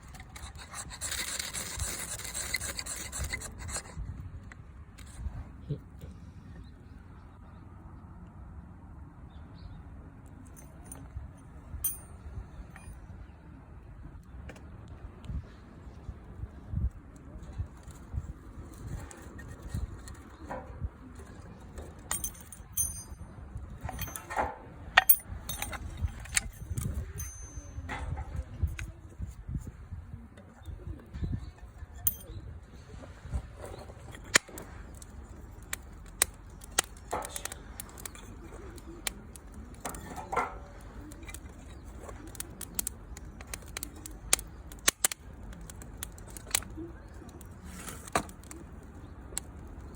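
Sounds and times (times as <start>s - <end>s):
metallic clinks: 11.8s - 13.0s, 22.1s - 24.4s, 25.0s - 28.0s, 32.1s - 32.4s
low rumbling handling noise: 17.4s - 49.9s
campfire crackling and popping: 34.2s - 40.1s, 40.7s - 49.9s.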